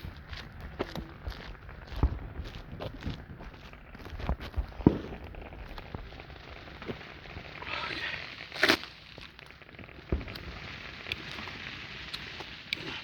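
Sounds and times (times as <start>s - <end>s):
fireworks pops and crackles: 0.0s - 13.0s
firework hiss: 4.8s - 9.3s, 10.0s - 13.0s
sharp crack: 6.8s - 13.0s.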